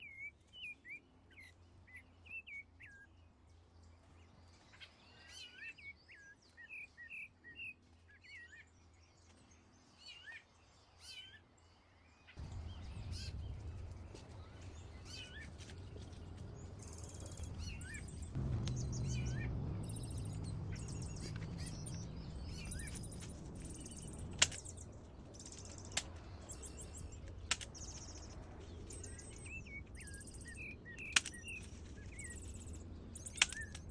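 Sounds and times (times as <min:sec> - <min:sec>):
birds chirping: 0:12.1 - 0:33.9
steady low rumble: 0:12.4 - 0:33.9
sharp clicks: 0:20.8 - 0:33.9.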